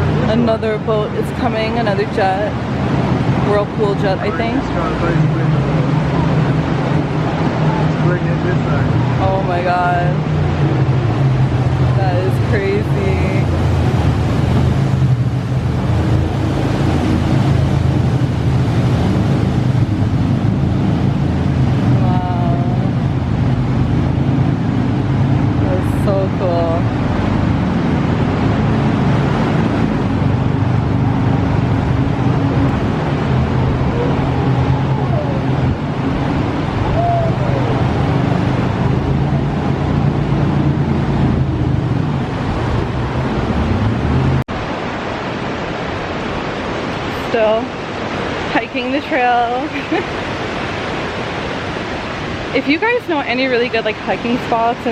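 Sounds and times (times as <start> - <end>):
boat engine droning: 0.0 - 54.9
river water rushing: 0.0 - 54.9.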